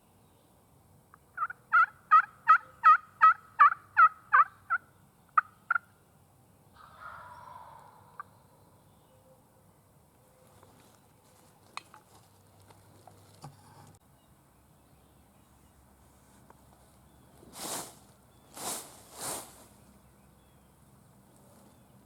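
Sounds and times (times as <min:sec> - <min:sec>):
fowl calling: 0:01.4 - 0:05.9, 0:06.8 - 0:08.5.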